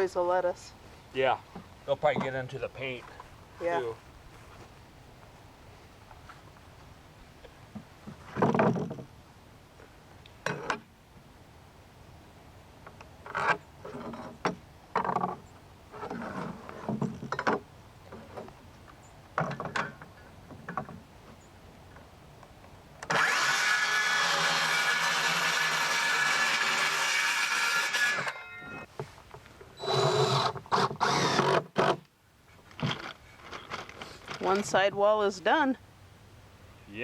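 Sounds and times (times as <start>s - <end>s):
power tool running: 23.0s - 28.4s, 29.8s - 31.9s.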